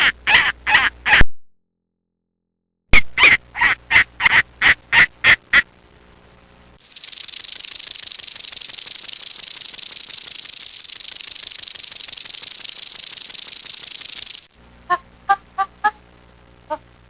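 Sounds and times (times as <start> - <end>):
dry rapid rattling buzz: 6.8 - 14.5.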